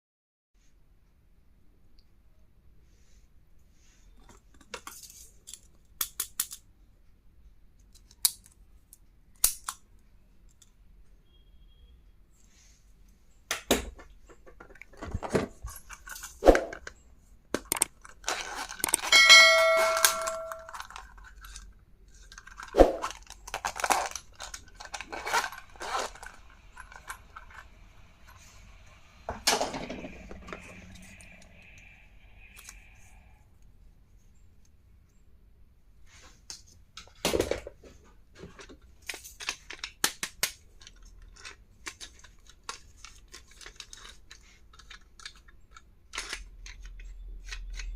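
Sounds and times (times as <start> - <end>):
short metallic ding: 19.1 - 20.7.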